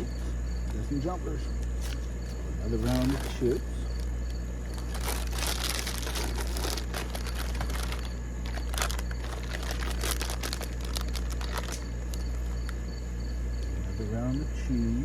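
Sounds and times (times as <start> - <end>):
insect chirping: 0.0 - 15.0
low hum: 0.0 - 15.0
corn chips crinkling into a bowl: 2.7 - 4.1, 4.7 - 12.4.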